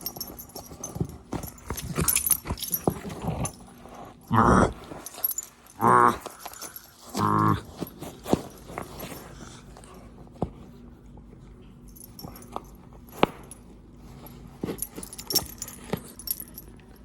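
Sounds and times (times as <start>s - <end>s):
dog chewing and tugging a toy: 0.0s - 10.7s, 11.8s - 17.0s.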